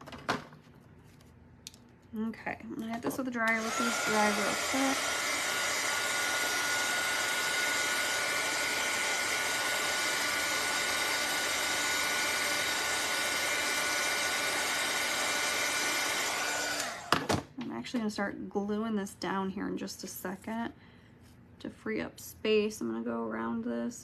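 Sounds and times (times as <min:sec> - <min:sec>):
handheld dryer blowing: 0:03.2 - 0:17.5.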